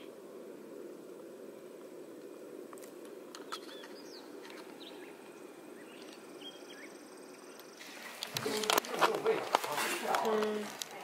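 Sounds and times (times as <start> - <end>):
steady low background noise: 0.0 - 11.0
bird chirps: 3.4 - 7.8.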